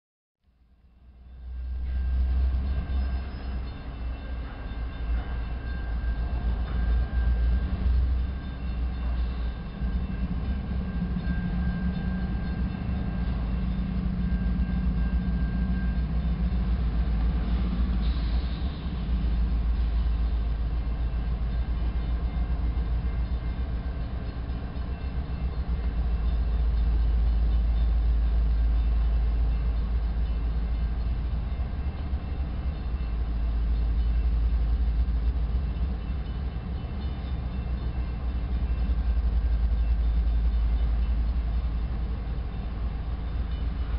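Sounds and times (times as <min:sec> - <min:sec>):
locomotive engine rumble: 0:00.8 - 0:43.9
thin high whine: 0:01.2 - 0:31.6.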